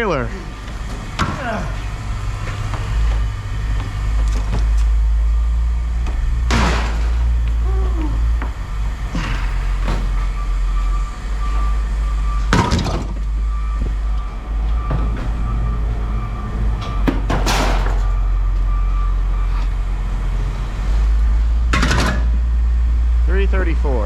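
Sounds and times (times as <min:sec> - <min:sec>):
vehicle engine rumbling: 0:00.0 - 0:24.0
loud knocks: 0:06.4 - 0:07.6, 0:08.2 - 0:11.0.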